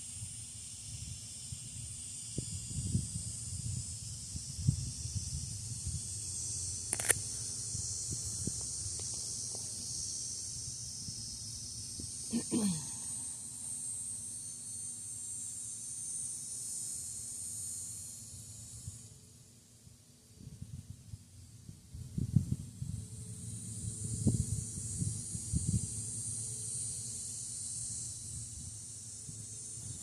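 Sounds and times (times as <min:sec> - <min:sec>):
high-pitched insect chorus: 0:00.0 - 0:30.0
sharp click: 0:06.9 - 0:07.2.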